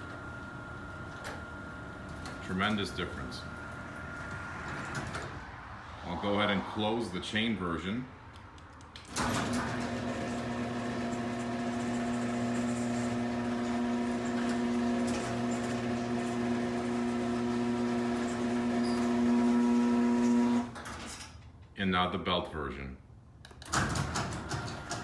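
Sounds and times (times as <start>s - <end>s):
garage door motor clunk: 0.0s - 5.4s, 9.0s - 21.6s, 23.6s - 25.0s
garage door opener humming: 0.0s - 5.4s, 9.1s - 21.3s, 23.6s - 25.0s
people speaking: 2.4s - 3.5s, 6.1s - 8.1s, 21.8s - 23.0s.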